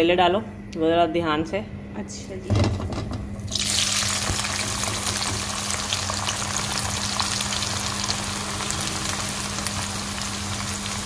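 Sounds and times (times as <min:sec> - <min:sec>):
vegetables sizzling in hot oil: 0:03.5 - 0:11.0.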